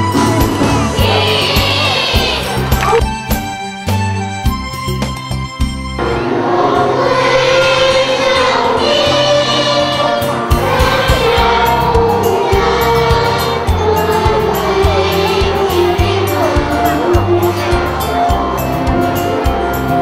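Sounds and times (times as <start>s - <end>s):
group of voices singing: 0.2s - 3.0s, 6.1s - 19.0s
low rhythmic bass beat: 1.0s - 3.4s.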